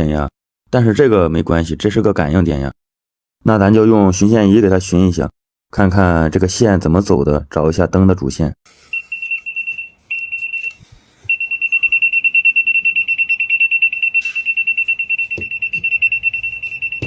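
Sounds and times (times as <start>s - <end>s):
wire tracer beeping: 8.9s - 17.0s.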